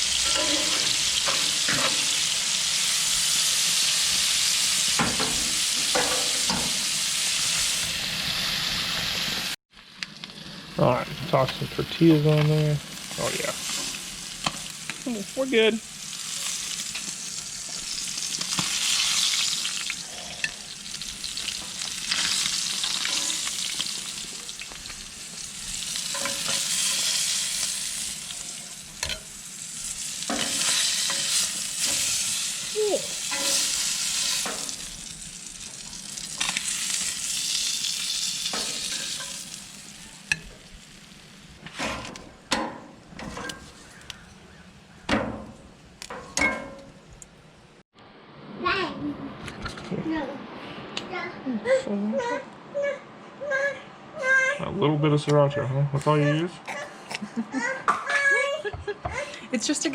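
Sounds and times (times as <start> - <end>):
fish sizzling in a skillet: 0.0 - 42.3.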